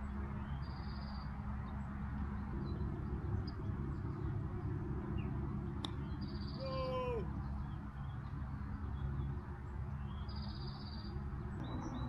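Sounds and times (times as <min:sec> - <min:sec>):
low rumble: 0:11.5 - 0:12.0.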